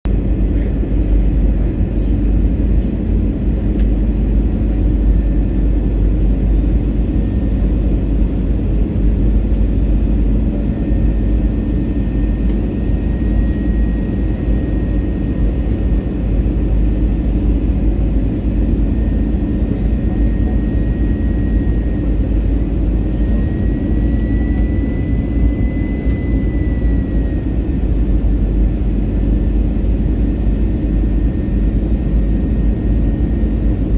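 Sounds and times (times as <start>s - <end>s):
airliner engines rumbling: 0.1s - 33.9s
faint high whine: 18.4s - 29.1s.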